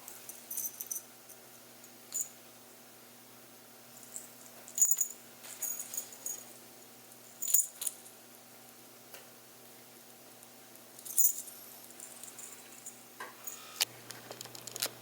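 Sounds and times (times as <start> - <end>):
small metal jingling: 0.3 - 2.4, 4.0 - 6.6, 7.2 - 8.2, 11.0 - 13.7.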